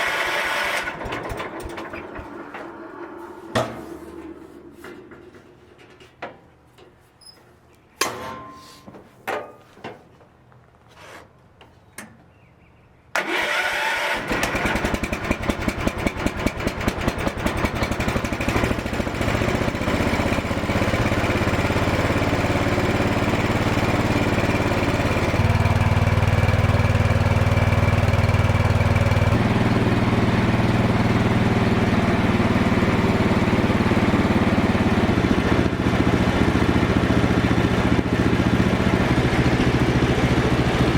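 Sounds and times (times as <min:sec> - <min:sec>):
garden tractor engine running: 0:00.0 - 0:04.2, 0:13.2 - 0:40.9.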